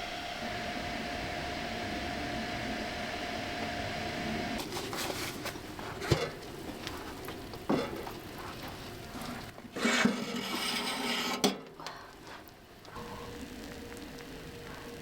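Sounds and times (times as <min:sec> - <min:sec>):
utensil scraping pan: 0:04.6 - 0:12.5.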